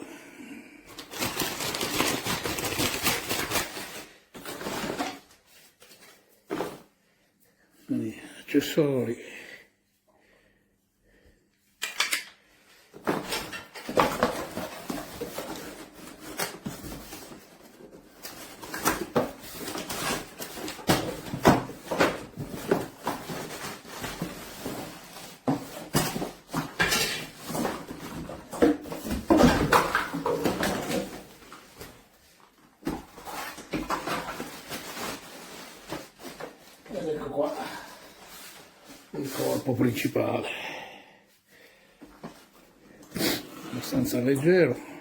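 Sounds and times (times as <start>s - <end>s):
parts and packaging being handled: 0.9s - 7.1s, 11.8s - 40.4s.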